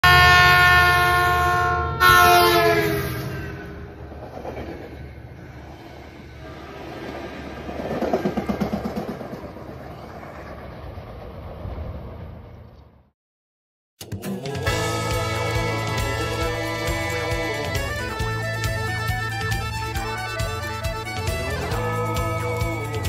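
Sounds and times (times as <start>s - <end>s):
train horn blowing: 0.0s - 3.9s, 6.4s - 7.0s, 14.5s - 23.0s
rumble of passing train cars: 0.0s - 13.1s, 14.6s - 23.0s.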